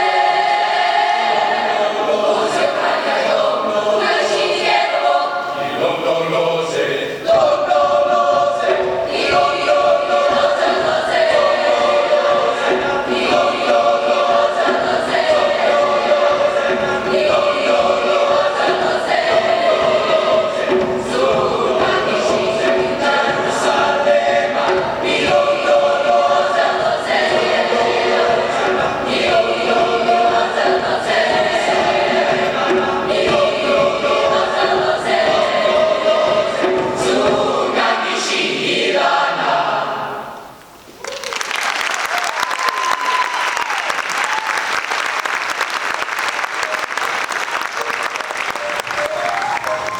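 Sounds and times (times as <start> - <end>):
choir singing: 0.0 - 40.6, 45.7 - 49.9
audience clapping: 41.0 - 49.9.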